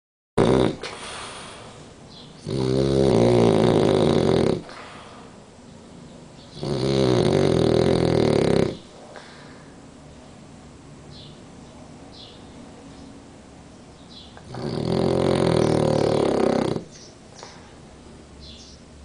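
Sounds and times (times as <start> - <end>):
dog snoring: 0.4 - 1.6, 2.4 - 5.0, 6.5 - 9.0, 14.4 - 17.0
dog breathing: 14.4 - 17.8.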